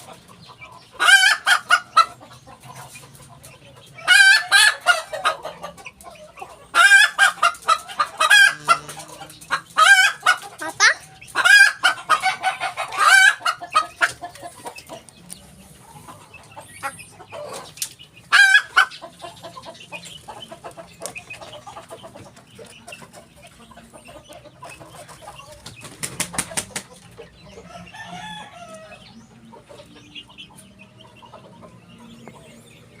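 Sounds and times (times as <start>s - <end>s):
hen calling harshly: 8.0s - 11.6s.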